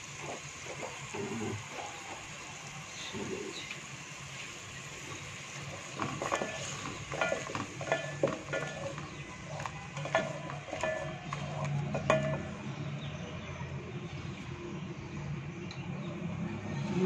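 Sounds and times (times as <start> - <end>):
masala sizzling in hot oil: 0.0 - 13.2
wooden spoon scraping a pot: 5.7 - 12.4.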